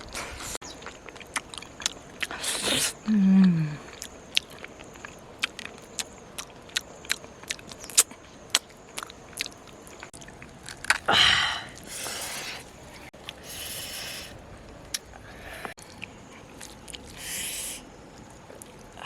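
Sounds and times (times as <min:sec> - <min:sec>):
person chewing crunchy food: 0:00.0 - 0:19.0
soft hissing: 0:02.3 - 0:03.0, 0:11.5 - 0:15.8, 0:17.0 - 0:19.0.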